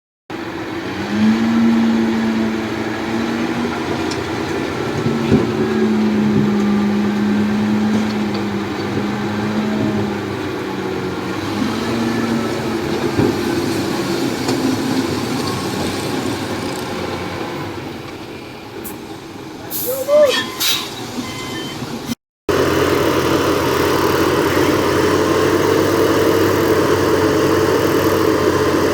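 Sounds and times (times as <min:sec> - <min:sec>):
heavy diesel machinery running: 0:00.3 - 0:28.9
steady droning tone: 0:00.4 - 0:11.2.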